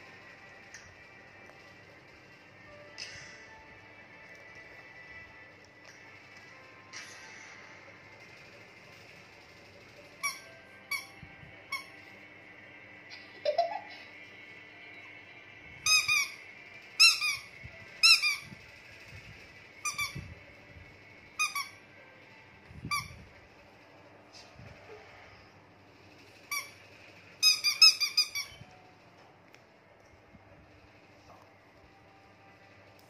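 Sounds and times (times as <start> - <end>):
rubber toy squeaking: 10.2 - 11.1, 15.8 - 16.4, 17.0 - 18.5, 27.4 - 28.6.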